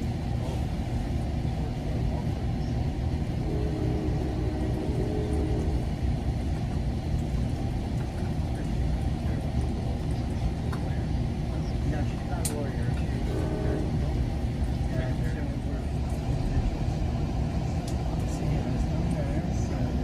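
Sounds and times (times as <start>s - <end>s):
train rumble inside passenger car: 0.0s - 20.0s
faint humming tone: 3.4s - 6.0s.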